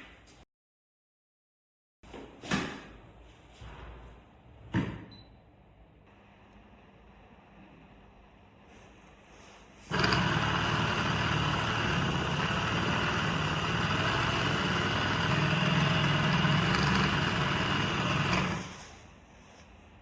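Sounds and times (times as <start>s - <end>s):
small electric motor whirring: 9.9s - 18.9s.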